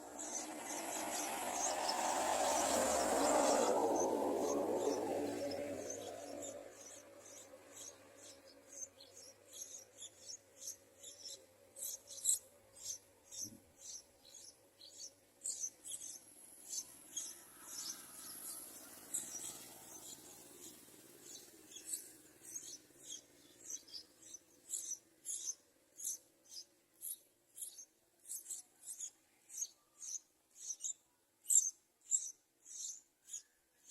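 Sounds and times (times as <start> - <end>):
nestlings chirping: 0.0 - 33.9.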